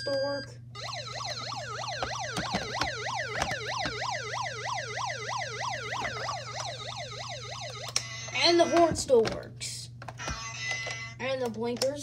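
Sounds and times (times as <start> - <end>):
toy electronic siren yelp: 0.8 - 8.8, 10.2 - 11.2.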